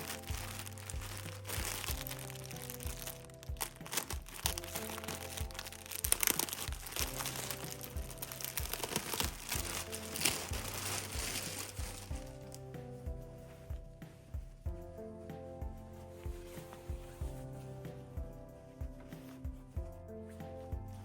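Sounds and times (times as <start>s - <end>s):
packaging crinkling: 0.0s - 12.6s
soft background music: 0.0s - 21.0s.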